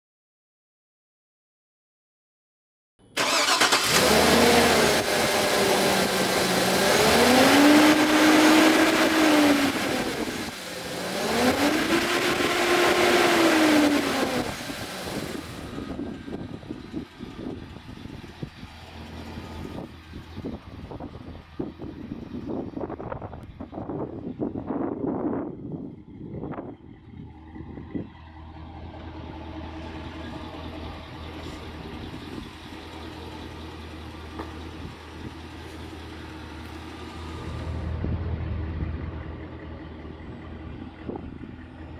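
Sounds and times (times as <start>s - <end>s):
pickup engine revving: 3.2s - 15.8s
engine idling: 3.2s - 22.9s, 27.1s - 41.9s.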